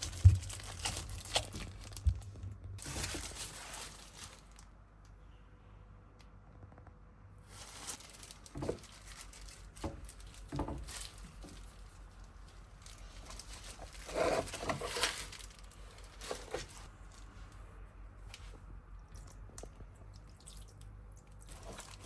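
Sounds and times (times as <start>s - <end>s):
hands rustling and rubbing materials: 0.0s - 4.7s.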